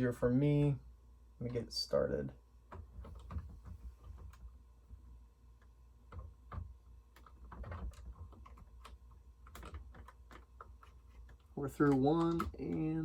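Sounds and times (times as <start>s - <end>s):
plastic lego pieces clicking: 7.2s - 13.0s.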